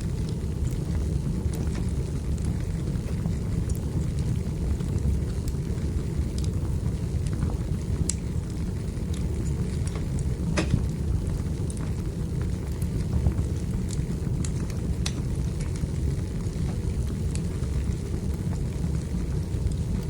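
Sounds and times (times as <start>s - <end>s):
wood fire crackling: 0.0s - 20.0s
sharp pops of burning wood: 9.0s - 15.8s.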